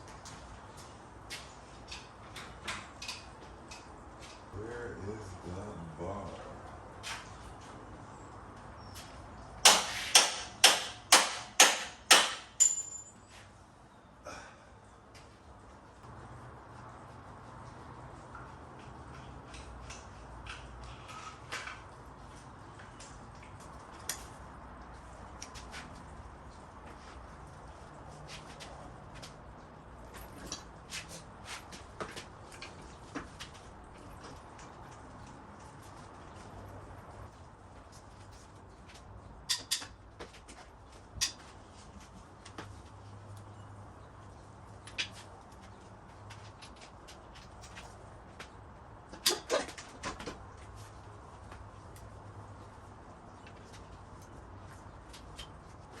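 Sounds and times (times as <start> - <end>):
clicks and knocks of engine parts: 0.2 - 4.5, 9.6 - 13.2, 37.8 - 41.5
hand tools clinking on metal: 10.1 - 13.4.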